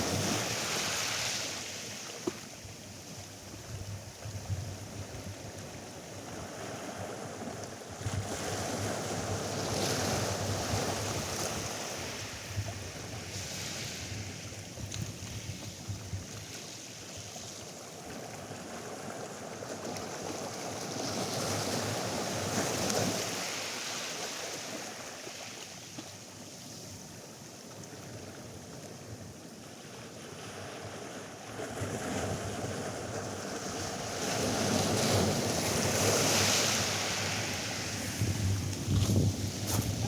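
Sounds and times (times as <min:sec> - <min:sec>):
surf breaking on beach: 0:34.4 - 0:40.0.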